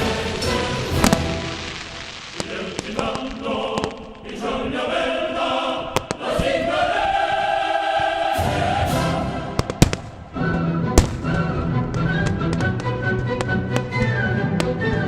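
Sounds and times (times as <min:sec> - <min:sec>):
firework bangs and cracks: 0:00.0 - 0:04.3, 0:09.5 - 0:10.3, 0:11.0 - 0:14.8
choir singing: 0:00.0 - 0:12.2.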